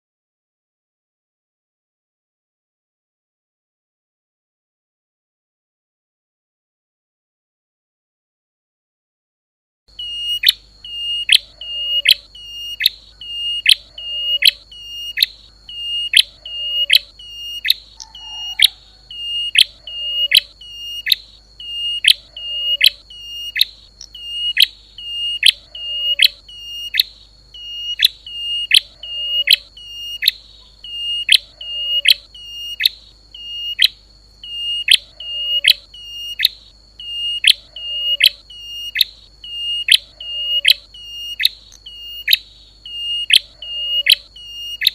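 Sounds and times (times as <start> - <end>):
sharp high bird chirps: 9.9 - 44.9.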